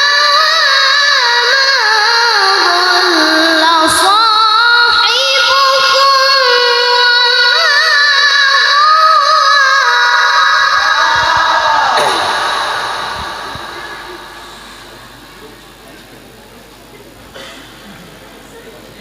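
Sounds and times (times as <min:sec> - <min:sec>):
child reciting melodically: 0:00.0 - 0:11.4.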